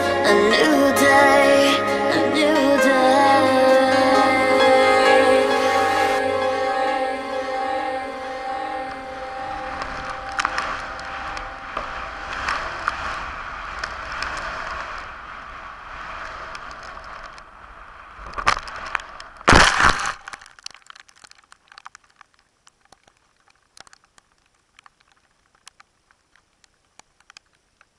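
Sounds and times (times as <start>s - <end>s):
rustling on camera microphone: 9.7s - 27.9s
loud scrape or crunch: 18.2s - 20.8s
sharp clicks: 18.3s - 27.9s.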